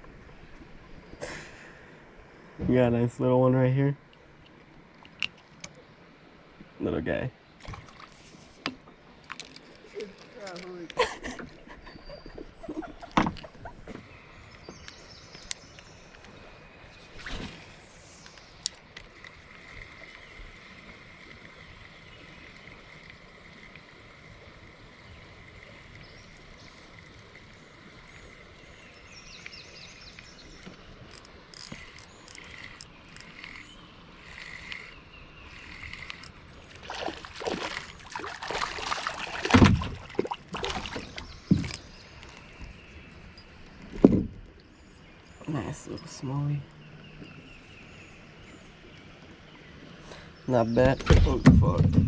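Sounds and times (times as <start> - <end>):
creek water running: 0.0 - 52.0
knocks and splashes: 7.6 - 9.6, 36.8 - 42.0, 43.9 - 44.4, 50.8 - 52.0.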